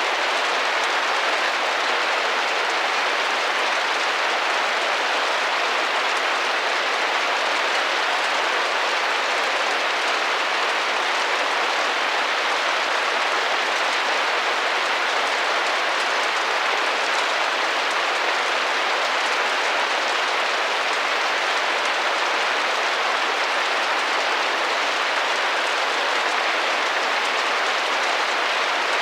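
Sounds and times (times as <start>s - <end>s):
rain drumming on window: 0.0s - 29.0s.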